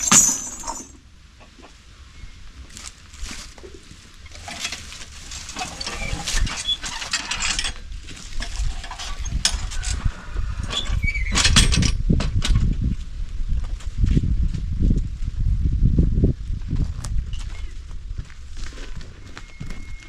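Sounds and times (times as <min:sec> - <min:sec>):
plough and harness knocking: 0:00.0 - 0:01.0.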